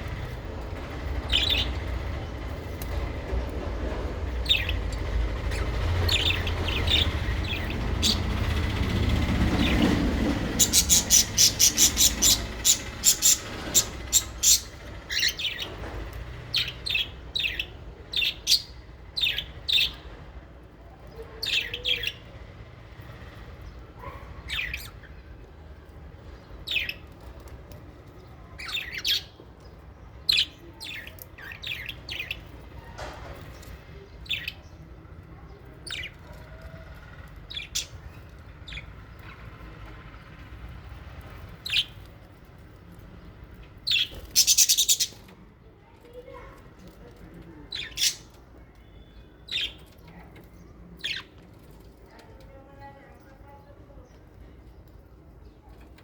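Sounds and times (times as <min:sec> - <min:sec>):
low rumble: 0:00.0 - 0:17.3
parrots chirping: 0:05.5 - 0:08.5, 0:10.5 - 0:15.8, 0:43.8 - 0:45.2, 0:47.7 - 0:48.4.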